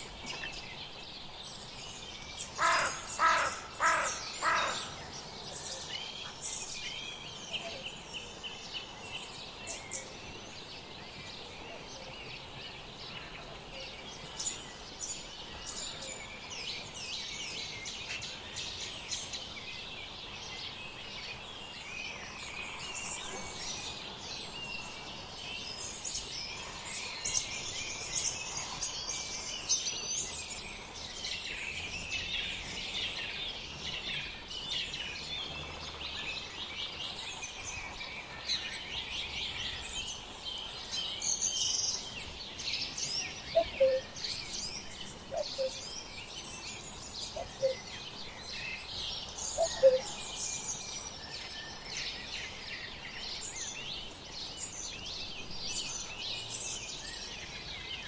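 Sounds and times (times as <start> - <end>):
songbirds chirping: 0.0 - 58.0
short lower bird calls: 43.5 - 44.2, 49.6 - 50.1.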